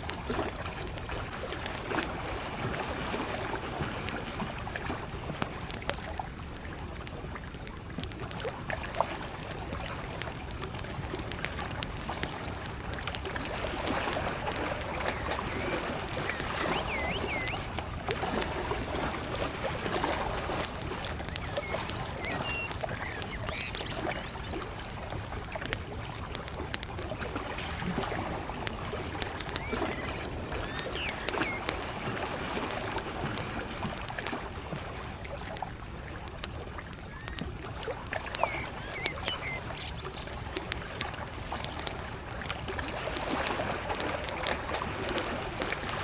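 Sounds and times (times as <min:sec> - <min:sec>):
waves lapping at the shore: 0:00.0 - 0:46.0
wood fire crackling and popping: 0:00.0 - 0:46.0
short bird chirps: 0:14.9 - 0:17.7, 0:21.3 - 0:24.7, 0:29.4 - 0:32.6, 0:38.2 - 0:40.6.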